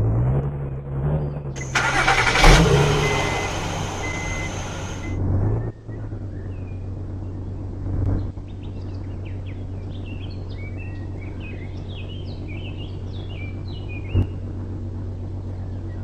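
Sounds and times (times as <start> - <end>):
birds chirping: 1.6 - 5.1
steady low hum: 1.6 - 5.3.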